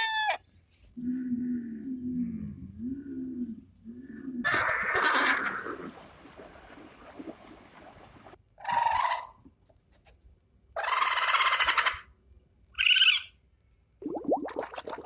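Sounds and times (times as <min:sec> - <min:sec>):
fowl calling: 0:04.5 - 0:06.5.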